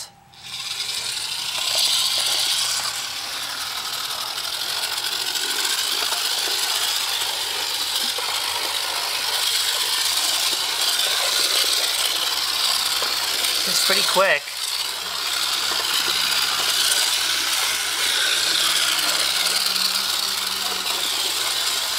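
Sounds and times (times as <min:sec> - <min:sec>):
model train rattling and clicking: 0:00.0 - 0:21.9.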